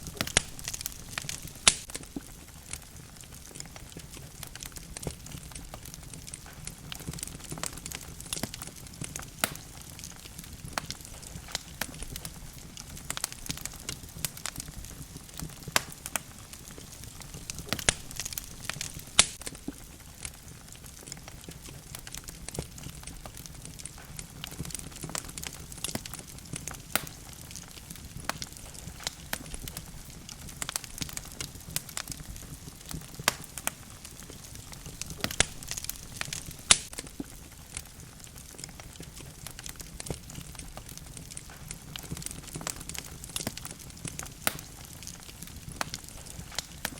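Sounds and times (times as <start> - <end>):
fire crackles and pops: 0.0 - 46.9
logs burning in fireplace: 0.0 - 46.9.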